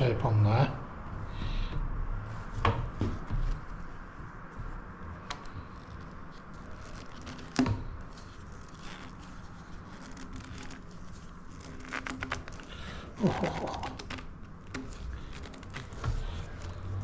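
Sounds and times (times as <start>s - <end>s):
plastic pipe clicks and rustles: 4.6s - 17.0s.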